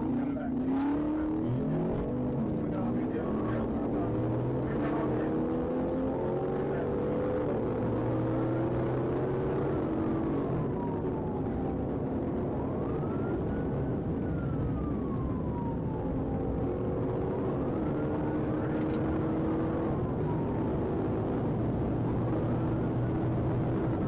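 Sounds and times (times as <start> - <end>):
police siren wailing: 0.0 - 24.0.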